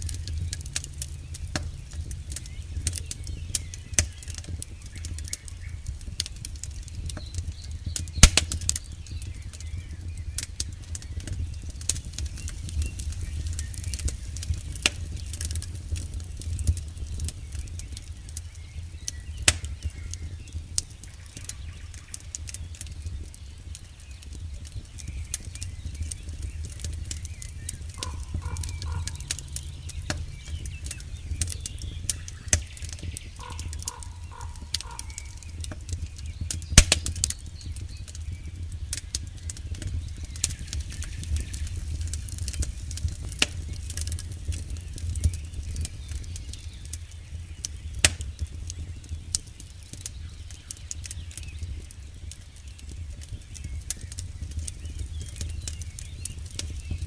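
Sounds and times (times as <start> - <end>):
low rumble: 0.0 - 7.9, 24.8 - 36.5
campfire crackling and snapping: 0.0 - 57.0.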